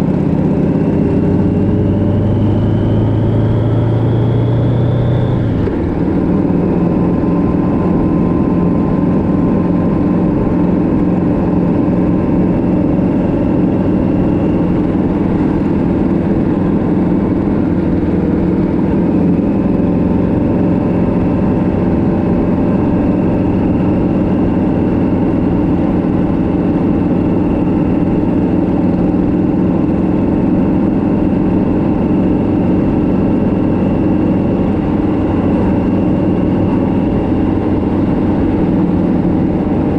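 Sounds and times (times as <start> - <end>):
road noise: 0.0 - 39.9
vehicle engine running: 0.0 - 39.9.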